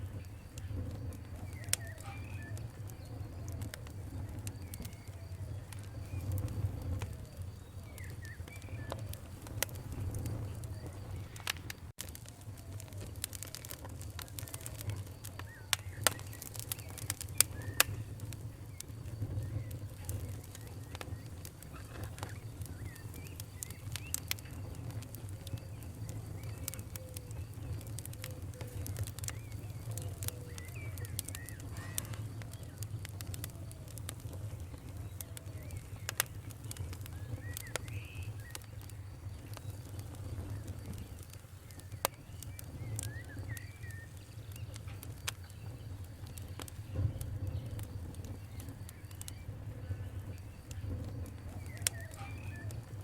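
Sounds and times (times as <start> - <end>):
campfire crackling and popping: 0.0 - 53.0
birds chirping and singing: 1.3 - 11.5, 14.2 - 33.2, 34.4 - 53.0
low rumble: 2.5 - 15.2.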